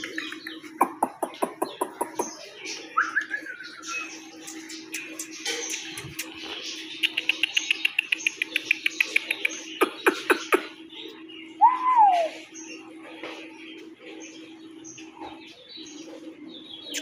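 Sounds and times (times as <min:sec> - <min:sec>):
small birds chirping: 0:00.0 - 0:17.0
sharp downward-sliding calls: 0:11.6 - 0:12.4.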